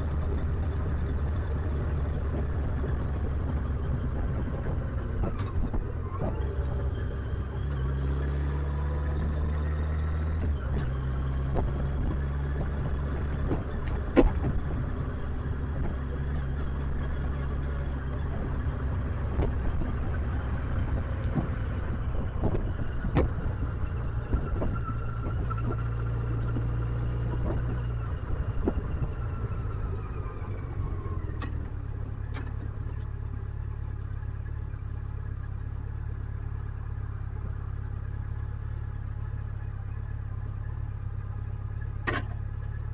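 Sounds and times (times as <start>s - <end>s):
motorcycle engine running: 0.0s - 42.9s
sharp clicks and knocks: 11.5s - 15.0s, 19.3s - 23.6s, 42.0s - 42.8s.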